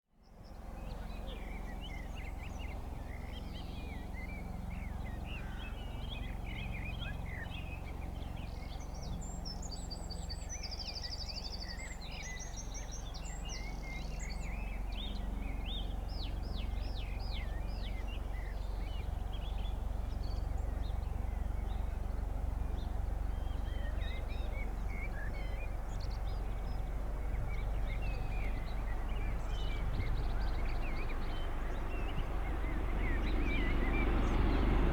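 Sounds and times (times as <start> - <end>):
small birds chirping: 22.8 - 34.9
steady low rumble: 25.6 - 34.9.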